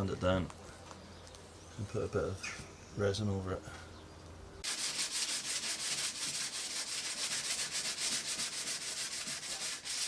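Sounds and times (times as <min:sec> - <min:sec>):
sandpaper rubbing on wood: 0:04.6 - 0:10.0.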